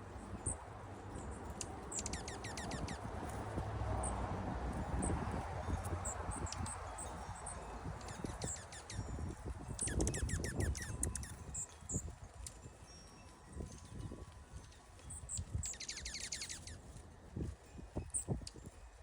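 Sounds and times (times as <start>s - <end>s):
small birds chirping: 0.0s - 3.4s, 4.8s - 12.6s, 15.0s - 18.7s.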